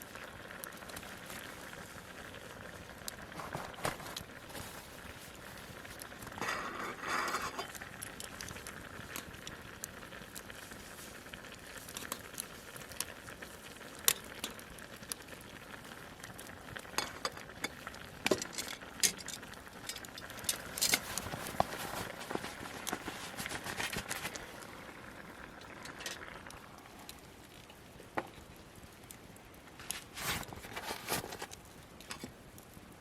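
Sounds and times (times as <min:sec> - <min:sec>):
food sizzling in a pan: 0:04.2 - 0:27.1
utensil scraping a pan: 0:06.3 - 0:07.8.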